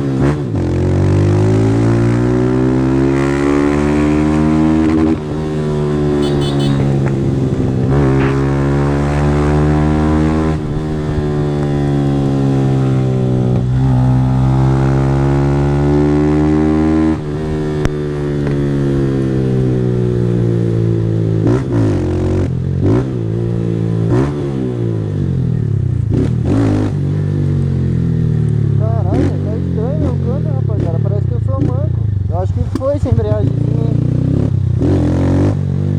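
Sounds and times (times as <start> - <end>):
motorcycle engine accelerating: 0.0 - 35.9.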